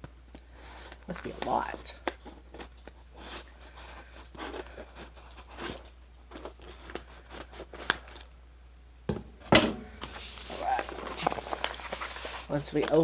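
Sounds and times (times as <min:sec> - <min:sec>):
cardboard and tape tearing: 0:10.1 - 0:13.0.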